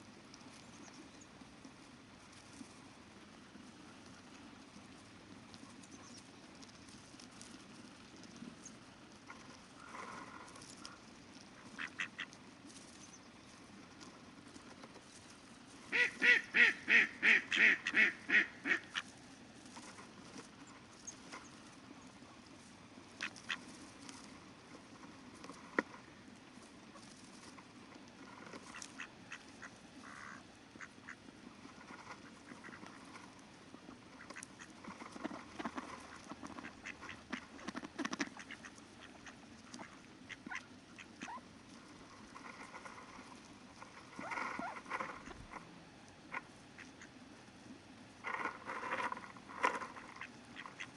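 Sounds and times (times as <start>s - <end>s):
faint river water murmur: 0.0s - 50.9s
soft calls and clicks: 3.9s - 47.4s
ducks quacking: 11.6s - 12.4s, 15.9s - 19.1s, 28.6s - 33.3s, 34.0s - 41.4s, 49.6s - 50.9s.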